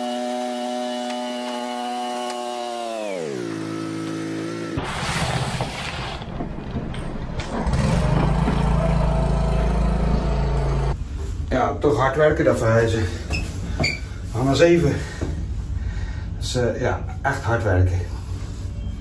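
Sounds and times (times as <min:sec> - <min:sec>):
engine running: 0:06.1 - 0:11.1.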